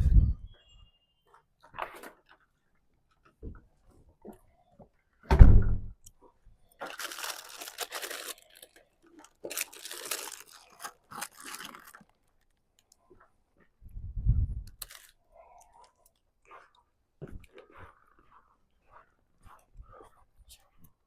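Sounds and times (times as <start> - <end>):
dull low thump: 5.3 - 6.0
crunching and rustling: 6.7 - 13.2, 14.8 - 16.1.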